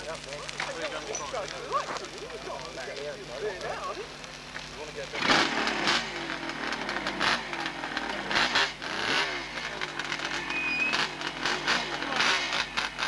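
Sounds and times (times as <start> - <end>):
motorcycle engine revving: 5.0 - 13.0.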